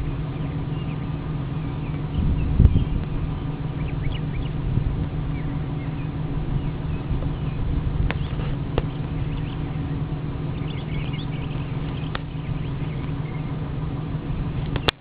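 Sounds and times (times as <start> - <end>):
pickup engine running: 0.0 - 15.0
high chirps: 5.3 - 13.6.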